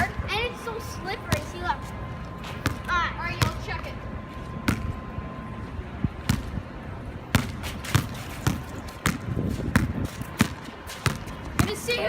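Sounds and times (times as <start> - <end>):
basketball bouncing on wet ground: 1.3 - 1.5, 2.5 - 3.6, 4.6 - 4.9, 6.2 - 6.5, 7.3 - 11.8.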